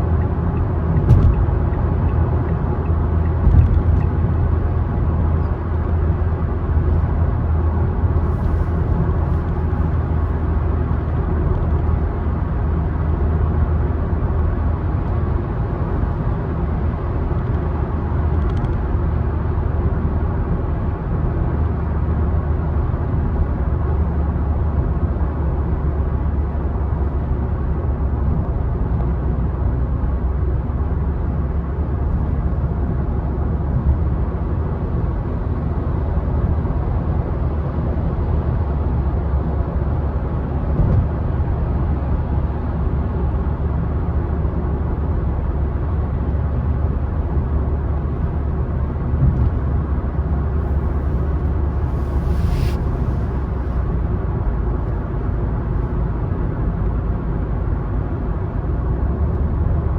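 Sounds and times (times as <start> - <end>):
car driving on road: 0.0 - 59.9
short bright hiss: 51.7 - 53.8.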